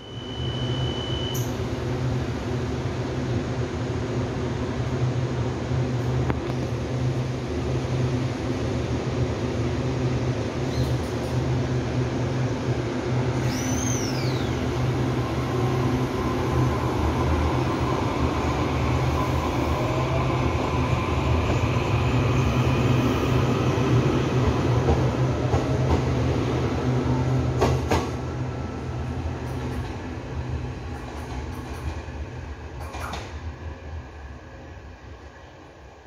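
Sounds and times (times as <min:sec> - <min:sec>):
electric train hum: 0:00.0 - 0:36.0
train motor whine: 0:13.3 - 0:16.5
train wheel clacks: 0:27.6 - 0:28.2, 0:30.9 - 0:32.1, 0:32.8 - 0:33.4.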